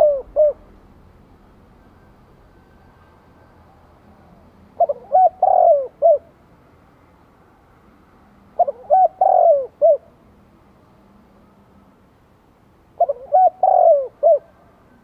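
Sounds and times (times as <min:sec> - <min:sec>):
dove cooing: 0:00.0 - 0:00.7, 0:03.6 - 0:06.4, 0:08.6 - 0:10.2, 0:13.0 - 0:15.0.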